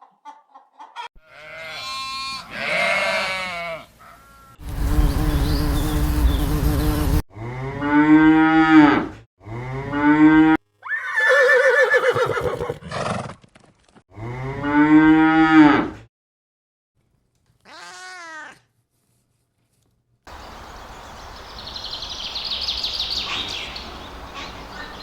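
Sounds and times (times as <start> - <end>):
cow mooing: 1.2 - 4.6, 7.3 - 10.6.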